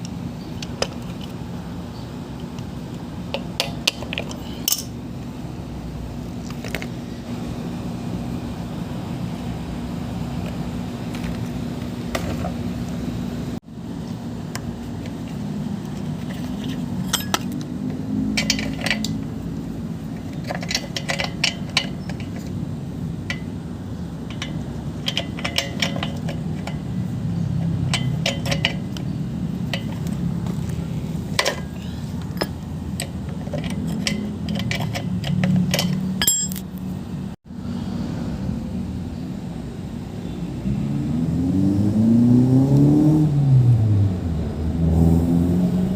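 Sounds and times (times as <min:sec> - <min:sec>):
metal tools clinking: 0:03.6 - 0:04.9, 0:16.3 - 0:17.6, 0:31.4 - 0:36.8.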